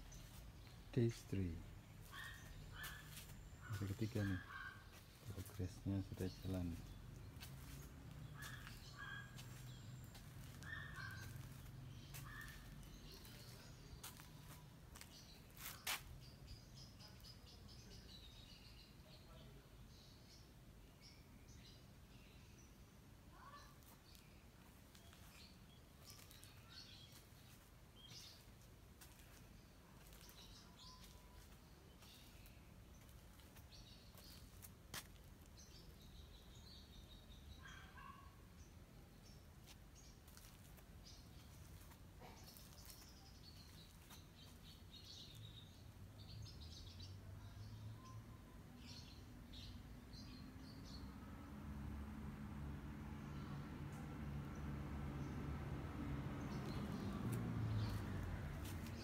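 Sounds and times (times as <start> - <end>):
faint bird calls: 2.0 - 5.6, 8.2 - 14.6.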